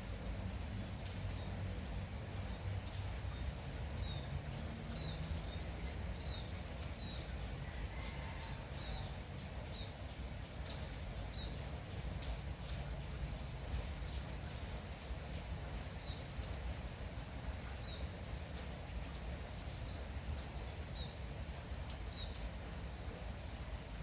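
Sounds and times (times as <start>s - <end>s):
light drizzle: 0.0s - 24.0s
sharp drip clicks: 10.6s - 12.9s, 21.4s - 22.5s.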